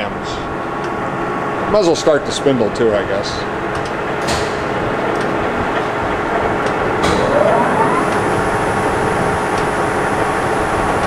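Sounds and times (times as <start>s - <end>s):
grinding wheel whine spinning up: 7.0s - 8.8s
machine hum: 7.0s - 8.8s.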